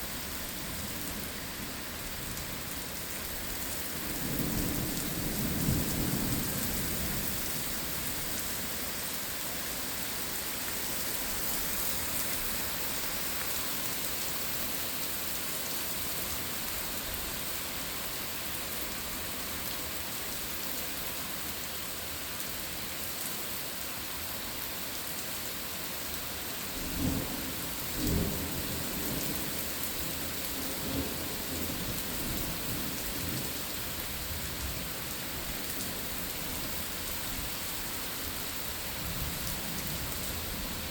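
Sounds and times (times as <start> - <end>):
heavy rain falling: 0.0 - 40.9
thunder rumbling: 26.9 - 29.4.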